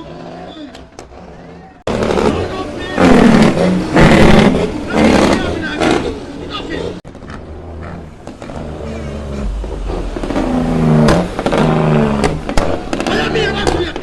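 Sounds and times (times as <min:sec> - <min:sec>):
truck engine revving: 0:00.0 - 0:14.0
steady low rumble: 0:07.1 - 0:12.9.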